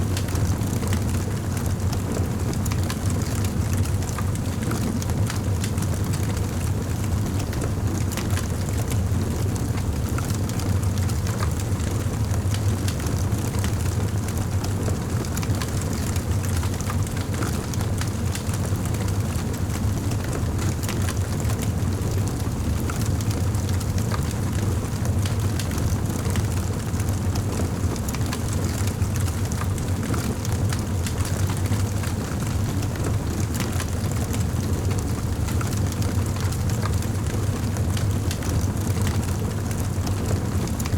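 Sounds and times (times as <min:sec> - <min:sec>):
fireplace fire crackling: 0:00.0 - 0:02.1, 0:13.8 - 0:40.9.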